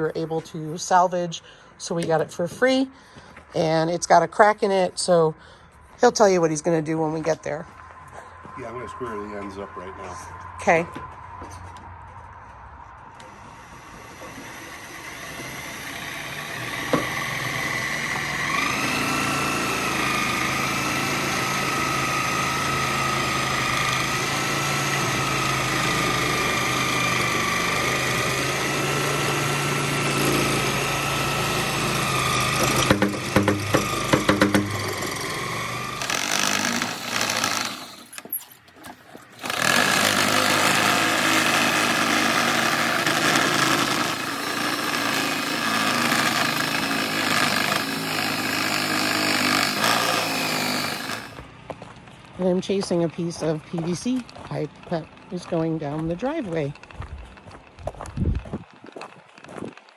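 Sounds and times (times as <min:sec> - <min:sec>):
power tool motor whining: 0:13.2 - 0:51.5
pipe cutting clatter: 0:13.6 - 0:51.5.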